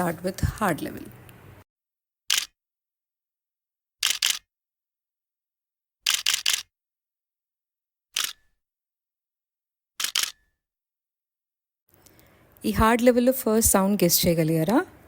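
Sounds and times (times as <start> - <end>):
camera shutter clicking: 4.0 - 4.4, 6.1 - 6.7, 10.0 - 10.4.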